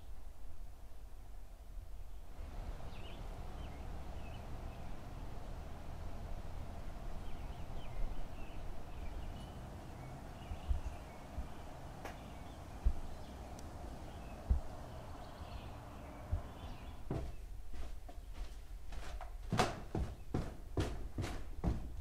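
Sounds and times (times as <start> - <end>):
small birds chirping: 2.1 - 19.1
steady low rumble: 2.3 - 17.9.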